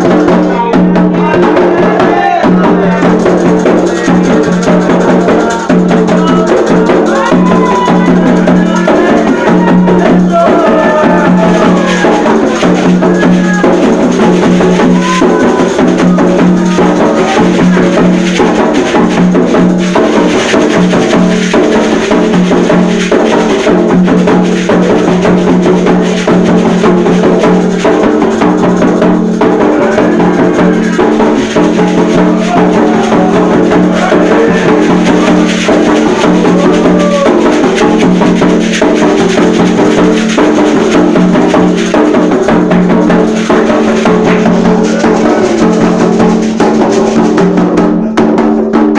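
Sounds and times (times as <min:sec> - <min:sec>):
voices singing: 0:00.0 - 0:19.6, 0:28.7 - 0:39.9, 0:43.1 - 0:46.2
drums beaten in dense rhythm: 0:00.0 - 0:48.9
struck percussion: 0:00.0 - 0:48.9.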